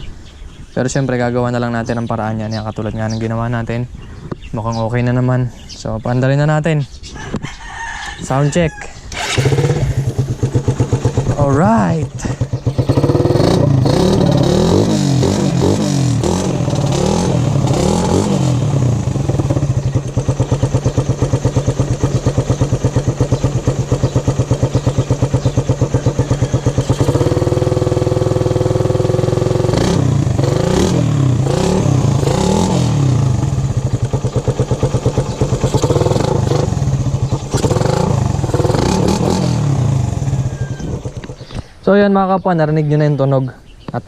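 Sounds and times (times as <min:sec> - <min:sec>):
motorcycle engine revving and idling: 0:09.1 - 0:41.6.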